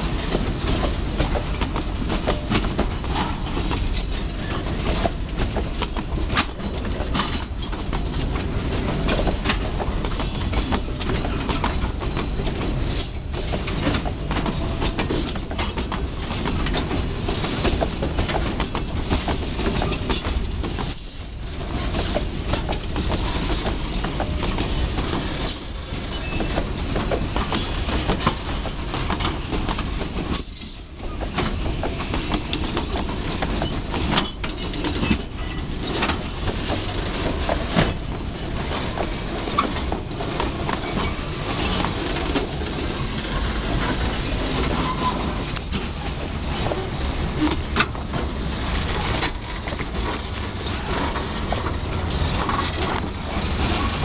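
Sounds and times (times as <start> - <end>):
train wheels rumbling on rail: 0.0 - 54.0
wheels clacking over rail joints: 0.0 - 54.0
high-pitched wheel squeals: 25.4 - 26.6, 30.4 - 31.2, 44.7 - 45.4.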